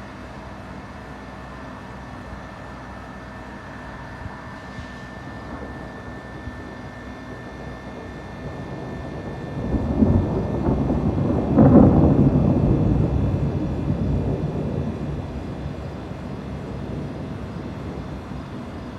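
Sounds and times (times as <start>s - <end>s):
steady background noise: 0.0s - 18.9s
thunder rolling: 5.2s - 18.9s.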